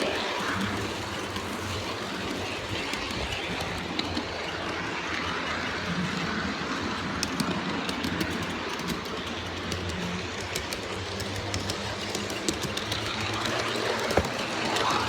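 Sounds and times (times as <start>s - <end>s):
wheels clicking over rail joints: 0.0s - 15.0s.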